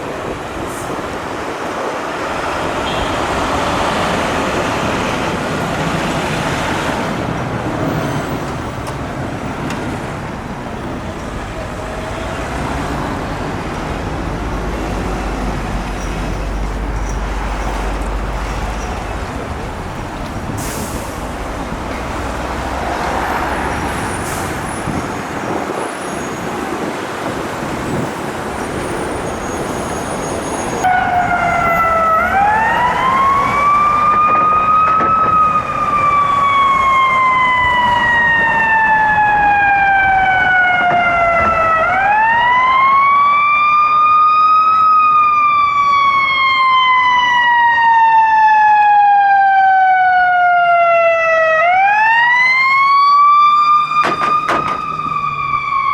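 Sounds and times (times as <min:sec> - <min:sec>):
street traffic: 0:00.0 - 0:55.9
ambulance siren wailing: 0:30.8 - 0:55.9
second siren sweeping faster: 0:30.8 - 0:55.9.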